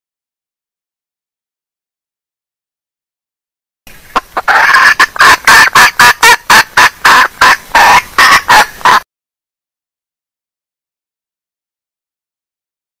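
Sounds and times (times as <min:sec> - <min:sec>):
hen clucking: 0:03.9 - 0:09.0.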